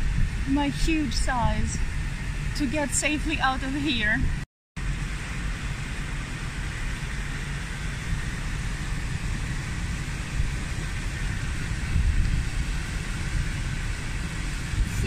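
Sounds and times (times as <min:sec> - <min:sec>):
wind buffeting microphone: 0:00.0 - 0:04.4, 0:05.9 - 0:15.0.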